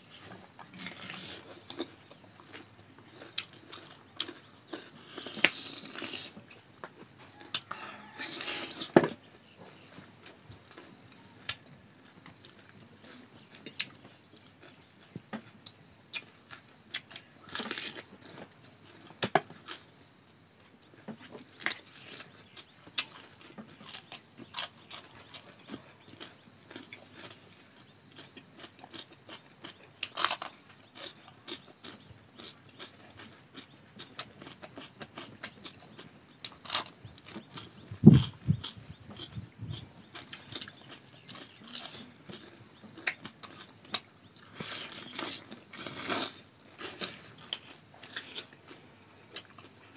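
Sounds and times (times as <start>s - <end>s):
crunching bites of cucumber: 0.6s - 6.4s, 15.4s - 19.9s, 21.6s - 27.4s, 28.1s - 48.7s.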